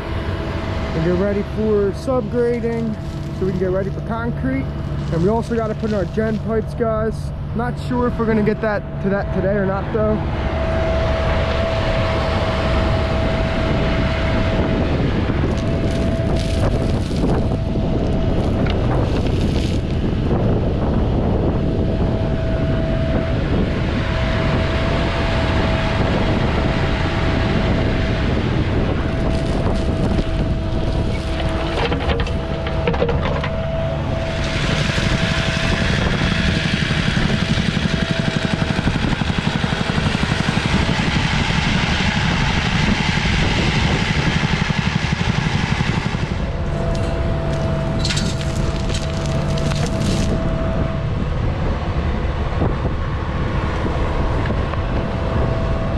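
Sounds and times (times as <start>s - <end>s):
diesel engine under load: 0.0s - 55.9s
engine whine: 0.0s - 55.9s
metal clanking and rattling: 31.0s - 33.8s, 46.7s - 50.3s.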